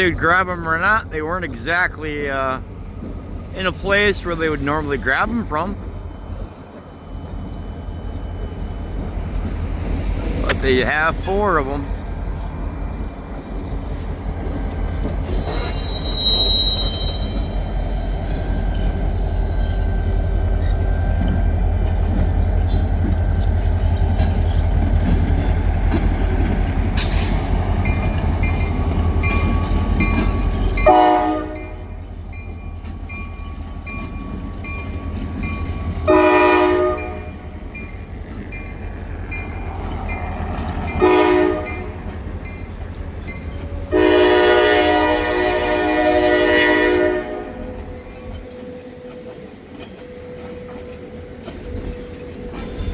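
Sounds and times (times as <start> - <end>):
diesel freight train rumbling: 0.0 - 52.9
train wheel clicks: 20.6 - 30.9
locomotive horn blasts: 30.8 - 31.9, 36.1 - 37.4, 41.0 - 42.0, 43.9 - 47.8.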